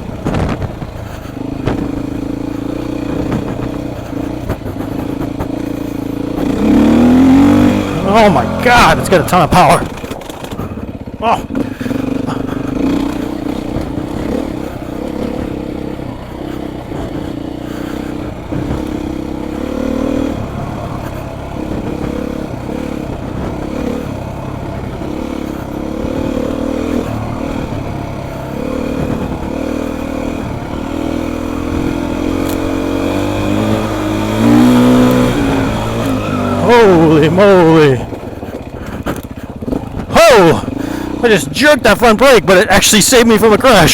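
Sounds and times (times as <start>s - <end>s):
bike knocks and rattles: 0.0s - 7.5s, 9.8s - 19.7s
dirt bike engine under load: 0.0s - 43.9s.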